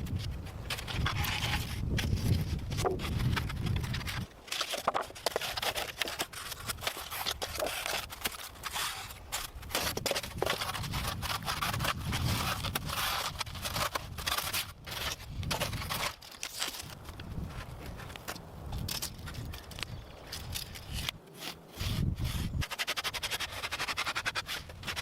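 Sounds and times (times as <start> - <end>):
brush being cut with hand tools: 5.3 - 15.1, 20.8 - 25.0.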